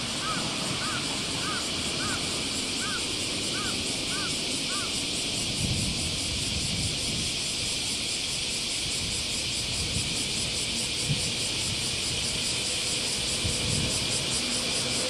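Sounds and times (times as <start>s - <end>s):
insects droning: 0.0s - 15.0s
train rumbling past: 0.0s - 15.0s.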